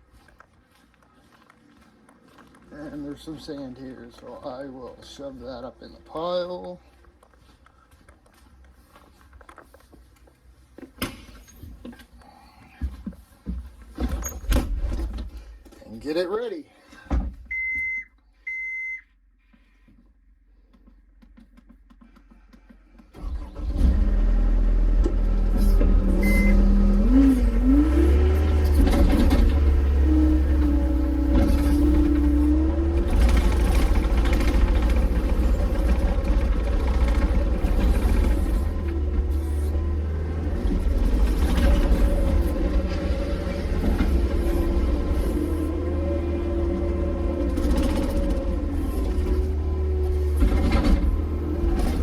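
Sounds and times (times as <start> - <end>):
short beep: 17.5 - 19.1, 26.2 - 26.6
vehicle engine revving: 23.2 - 52.0
clatter and scraping: 27.3 - 46.0, 46.6 - 52.0.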